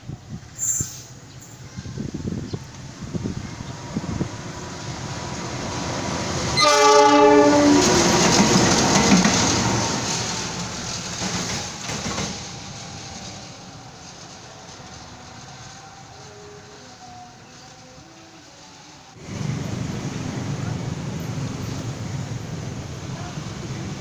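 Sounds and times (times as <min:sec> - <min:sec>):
train rumble: 0:00.0 - 0:24.0
train wheel clatter: 0:04.1 - 0:17.8
locomotive horn blast: 0:06.5 - 0:08.4.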